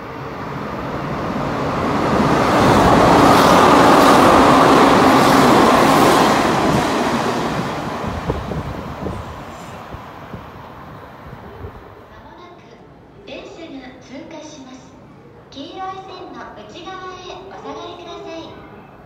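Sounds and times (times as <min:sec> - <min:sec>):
train wheels rushing on rail: 0:00.0 - 0:12.0.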